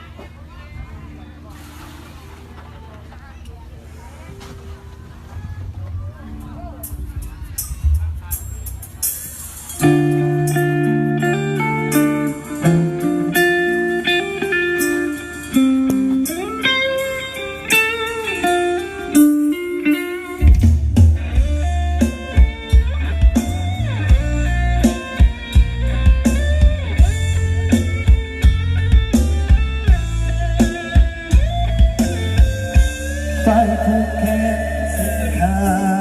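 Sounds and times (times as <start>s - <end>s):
bass and drums beat: 5.4s - 36.0s
electric guitar lead: 9.7s - 36.0s.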